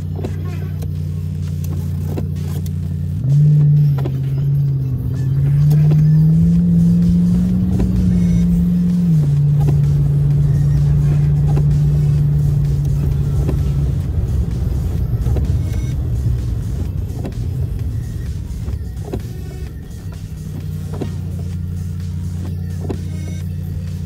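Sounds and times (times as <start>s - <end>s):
car engine accelerating: 0.0s - 24.0s
road noise: 0.0s - 24.0s.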